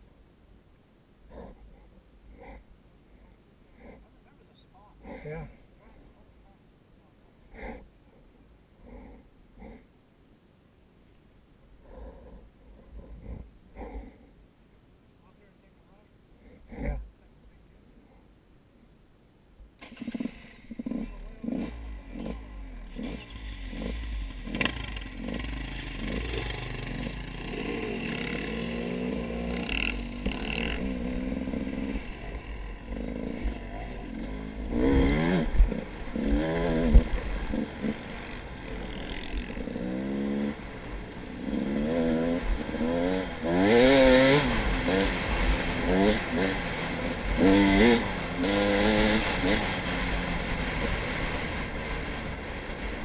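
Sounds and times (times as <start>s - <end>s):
vehicle engine revving: 19.8s - 53.0s.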